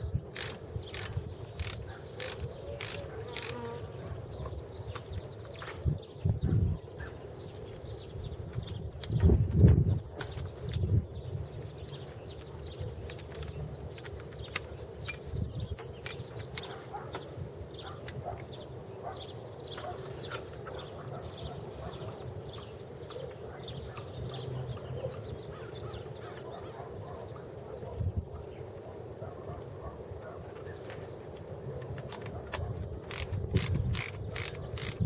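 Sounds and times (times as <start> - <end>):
birds chirping: 0.0 - 35.0
sharp clicks: 0.3 - 3.6, 31.9 - 35.0.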